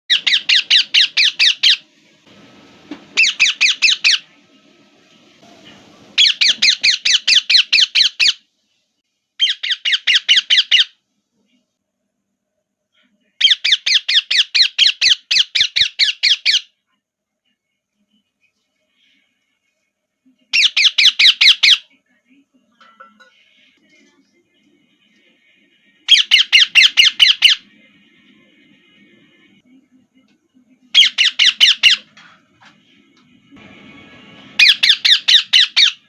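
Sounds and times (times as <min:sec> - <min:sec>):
parrot screeching: 0:00.1 - 0:01.8, 0:03.2 - 0:04.2, 0:06.2 - 0:08.4, 0:09.4 - 0:11.0, 0:26.1 - 0:27.6, 0:31.0 - 0:32.1, 0:34.6 - 0:36.0.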